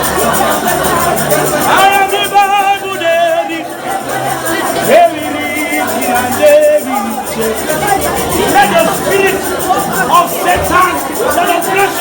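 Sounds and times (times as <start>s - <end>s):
person singing gospel: 0.0s - 12.0s
sustained bass notes: 4.5s - 11.5s.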